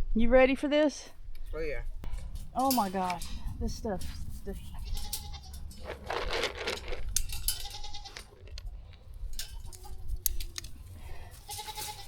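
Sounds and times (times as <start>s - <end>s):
goats bleating: 4.0s - 8.5s, 10.7s - 12.0s.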